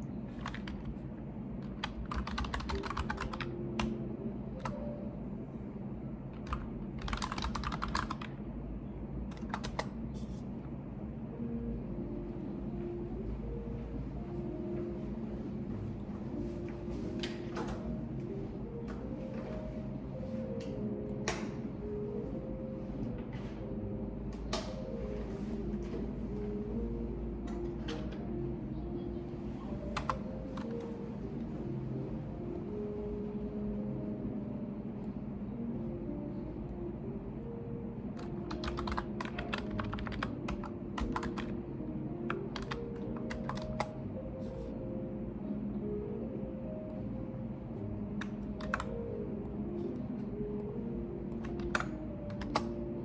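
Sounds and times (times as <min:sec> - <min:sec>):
low office hum: 0:00.0 - 0:53.0
typing on a computer keyboard: 0:00.3 - 0:00.9, 0:01.6 - 0:04.0, 0:04.6 - 0:04.8, 0:06.3 - 0:08.4, 0:09.3 - 0:10.0, 0:29.9 - 0:30.9, 0:38.2 - 0:41.6, 0:42.3 - 0:44.0, 0:48.2 - 0:48.9, 0:51.4 - 0:52.8.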